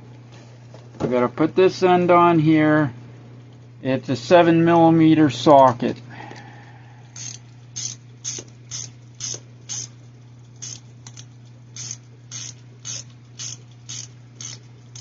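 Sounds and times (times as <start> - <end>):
socket ratchet clicking: 7.2 - 9.9, 10.6 - 15.0.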